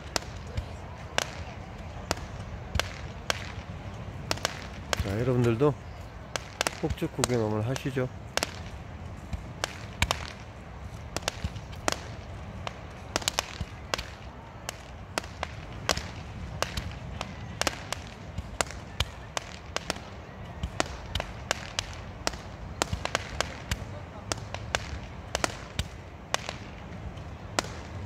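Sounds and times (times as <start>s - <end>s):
fireworks cracking and popping: 0.0s - 28.0s.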